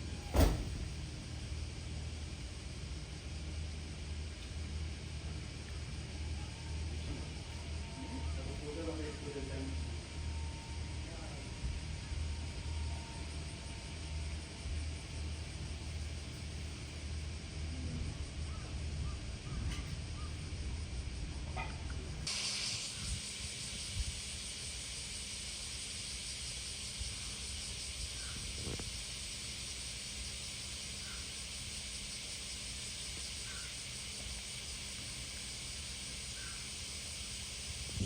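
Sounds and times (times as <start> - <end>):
steady high hiss: 22.1 - 38.0.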